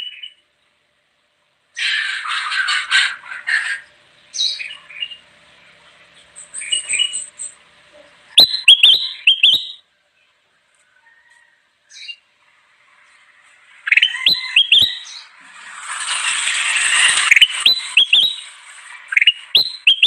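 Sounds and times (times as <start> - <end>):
bulbul chirping: 8.4 - 9.8, 13.8 - 15.2, 17.2 - 20.0.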